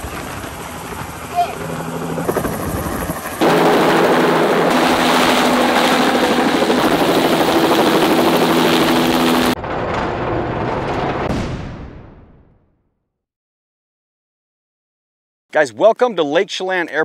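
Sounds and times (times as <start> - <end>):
helicopter passing overhead: 0.0 - 11.2.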